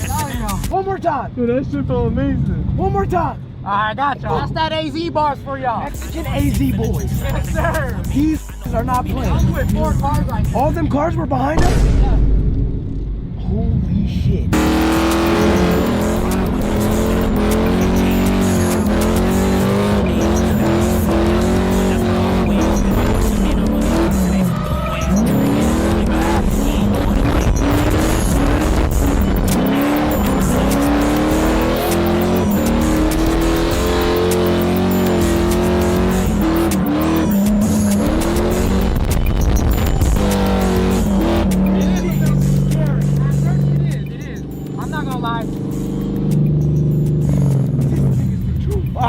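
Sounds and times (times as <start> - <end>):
car engines revving: 0.0 - 49.0
tires squealing: 14.5 - 49.0.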